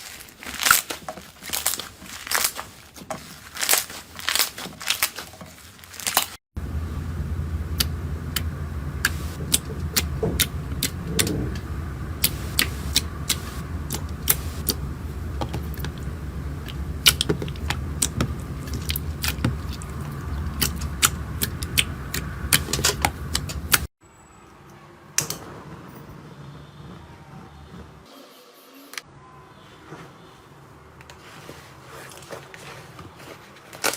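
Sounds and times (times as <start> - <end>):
steady low rumble: 6.6 - 23.9.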